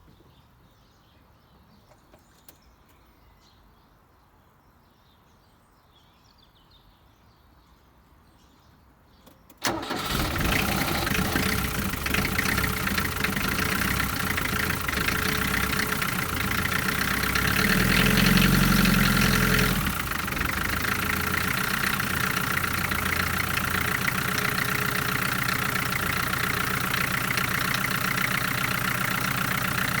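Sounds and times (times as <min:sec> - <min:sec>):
diesel engine idling: 0:09.6 - 0:30.0.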